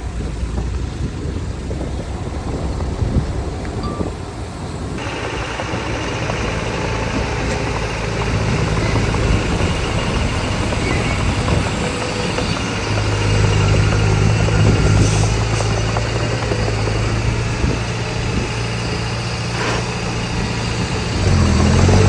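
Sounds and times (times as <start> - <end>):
heavy machinery diesel engine: 0.0 - 22.0.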